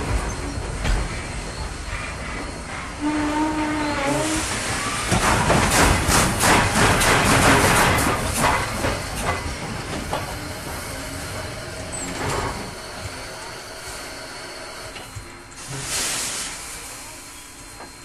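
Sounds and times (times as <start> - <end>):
train clattering by: 0.0 - 16.1.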